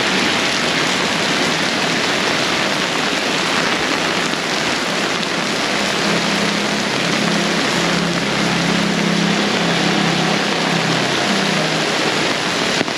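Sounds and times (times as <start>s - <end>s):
heavy rain on umbrella: 0.0s - 12.9s
low engine hum: 5.1s - 12.9s.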